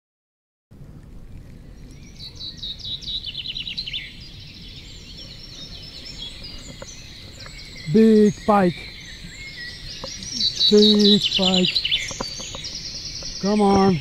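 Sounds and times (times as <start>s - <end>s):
outdoor background noise: 0.7s - 14.0s
songbirds singing: 0.8s - 14.0s
bird notes falling in pitch: 9.9s - 14.0s.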